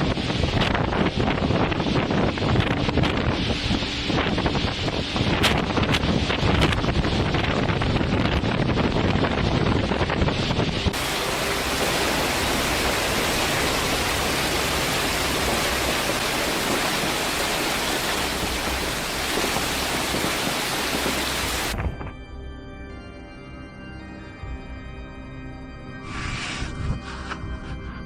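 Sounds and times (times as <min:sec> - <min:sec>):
rushing hiss of storm: 0:00.0 - 0:21.8
wind buffeting microphone: 0:00.0 - 0:22.2
music: 0:21.8 - 0:28.0.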